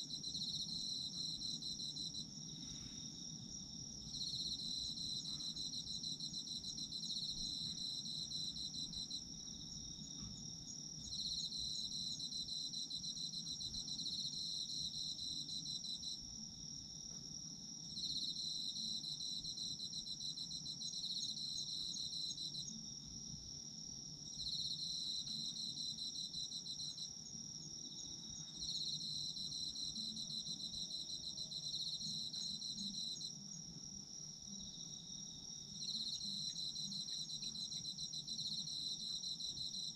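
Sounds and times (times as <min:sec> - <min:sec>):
cricket continuous trill: 0:00.0 - 0:39.9
cricket pulsing chirps: 0:00.0 - 0:39.9.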